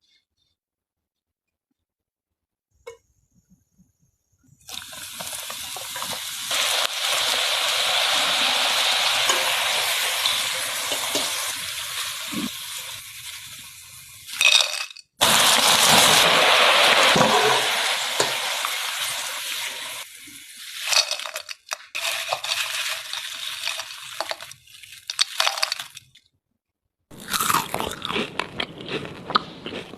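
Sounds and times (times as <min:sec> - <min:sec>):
cooking hiss: 0:04.6 - 0:25.8
utensils clinking: 0:04.7 - 0:11.6, 0:14.3 - 0:15.1, 0:20.8 - 0:26.0.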